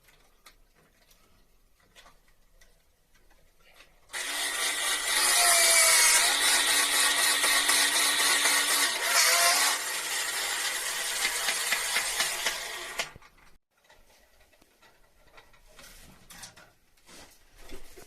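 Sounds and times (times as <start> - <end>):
power saw cutting: 4.1 - 13.4.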